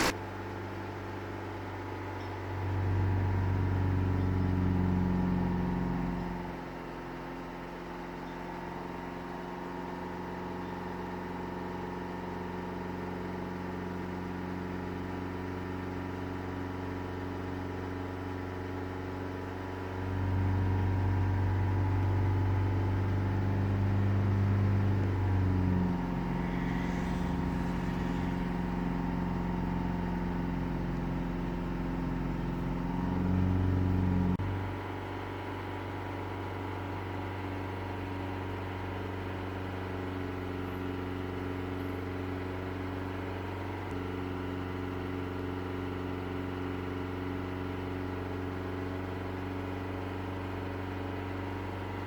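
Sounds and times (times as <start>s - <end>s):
car engine at raised revs: 19.8s - 36.4s.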